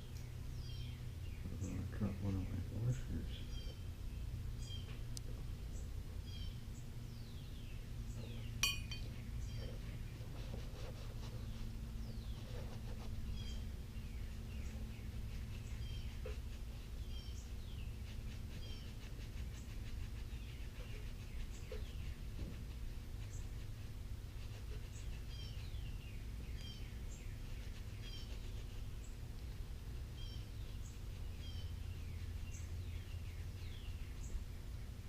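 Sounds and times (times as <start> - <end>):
metallic clink of metal part: 8.6 - 9.1.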